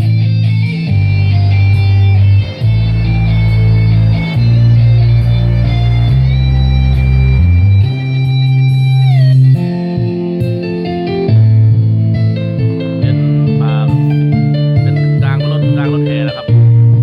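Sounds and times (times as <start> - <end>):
loud bass-heavy music: 0.0 - 17.0
higher tone sliding down: 0.1 - 11.3.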